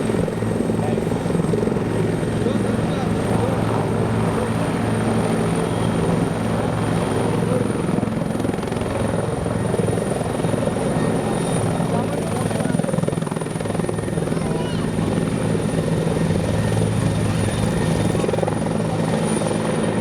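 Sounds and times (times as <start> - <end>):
high turbine whine: 0.0 - 19.6
helicopter rotor beating: 0.0 - 20.0.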